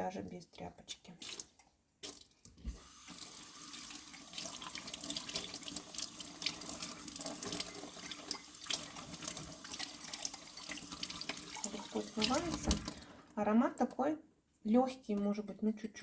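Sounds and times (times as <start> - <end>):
tap water running into sink: 1.2 - 13.3
water splashing over a mug: 1.2 - 13.3.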